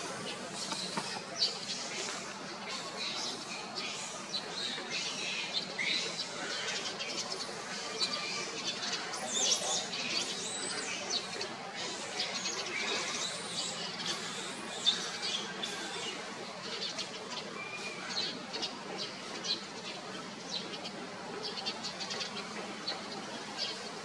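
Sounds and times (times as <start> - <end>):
birds chirping: 0.0 - 24.0
low background noise: 0.0 - 24.0.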